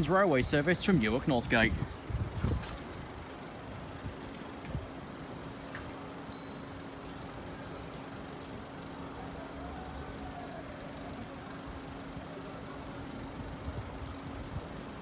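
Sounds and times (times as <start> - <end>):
road noise: 0.0 - 15.0
vehicle engine idling: 0.0 - 15.0.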